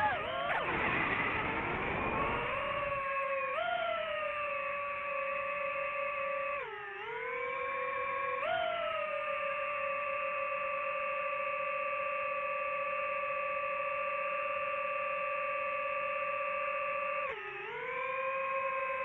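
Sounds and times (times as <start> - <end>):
drone motors whining: 0.0 - 13.2.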